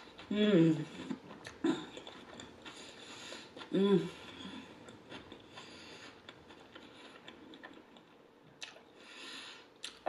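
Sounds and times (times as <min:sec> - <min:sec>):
soft wet chewing: 0:00.0 - 0:10.0
soft breaths: 0:02.6 - 0:07.5, 0:08.9 - 0:09.8.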